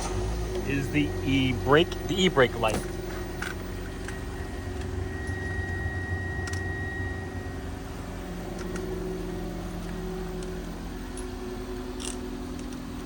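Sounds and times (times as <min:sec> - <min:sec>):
car engine idling: 0:00.0 - 0:13.0
thin high whine: 0:00.6 - 0:10.7.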